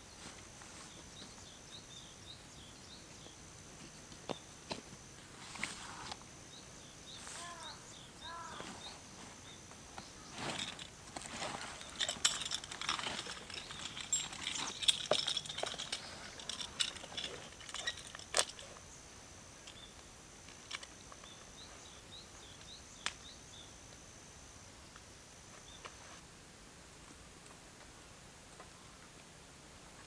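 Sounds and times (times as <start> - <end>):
faint bird chirps: 6.5 - 10.4
rustling and crunching handling: 7.2 - 18.8.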